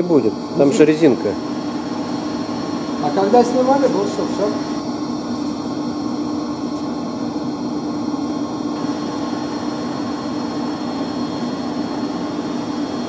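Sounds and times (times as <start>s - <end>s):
electric pumps humming: 0.0s - 13.0s.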